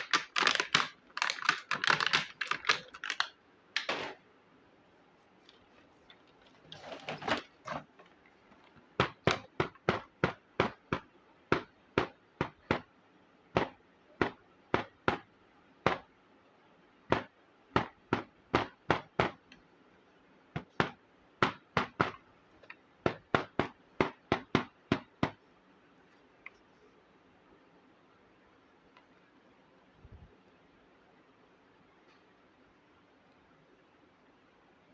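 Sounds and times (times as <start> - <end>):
plastic pieces rustling: 0.0 - 3.4.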